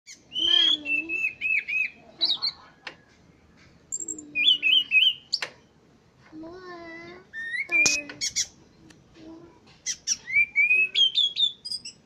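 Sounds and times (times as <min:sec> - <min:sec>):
thrush singing whistled notes: 0:07.3 - 0:08.5, 0:10.1 - 0:12.0.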